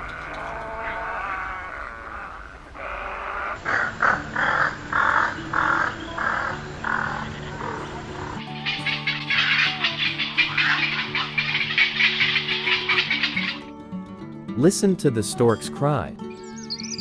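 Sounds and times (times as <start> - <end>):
heron croaking calls: 0.0 - 13.6.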